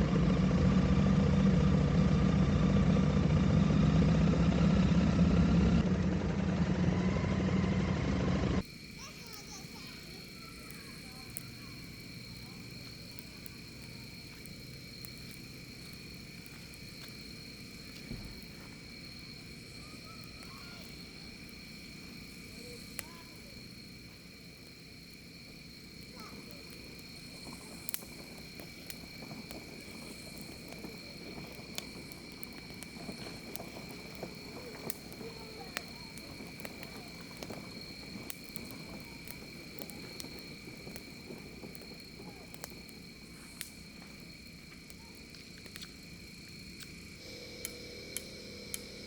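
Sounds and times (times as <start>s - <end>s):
insects droning: 0.0s - 49.0s
sharp clicks: 46.8s - 49.0s.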